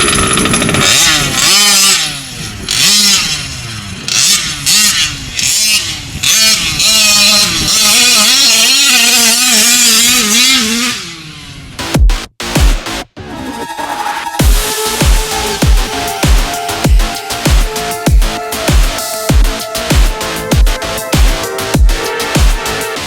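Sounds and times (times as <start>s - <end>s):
small engine revving: 0.0s - 11.9s.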